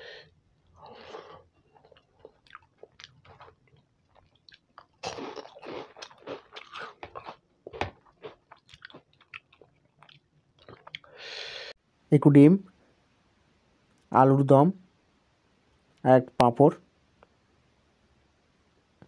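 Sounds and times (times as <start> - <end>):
soft chewing: 0.2 - 11.2
crunching crisp fried snack: 1.2 - 11.0.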